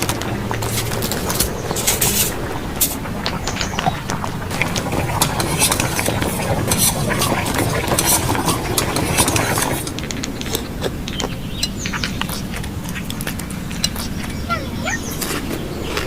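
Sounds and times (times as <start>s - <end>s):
utensils clinking against a pot: 0.0s - 3.0s, 4.5s - 12.5s, 13.7s - 14.3s
steady background noise: 0.0s - 16.0s.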